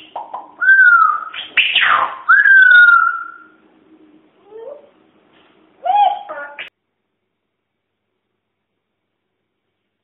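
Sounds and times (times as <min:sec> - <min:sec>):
parrot whistling: 0:00.1 - 0:03.6.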